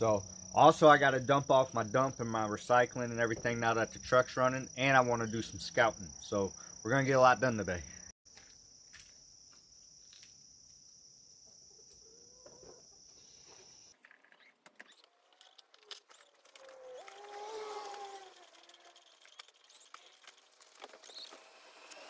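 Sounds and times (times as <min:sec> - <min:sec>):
crickets trilling: 0:00.0 - 0:14.0, 0:14.8 - 0:22.0
short rising and falling animal call: 0:16.4 - 0:19.0.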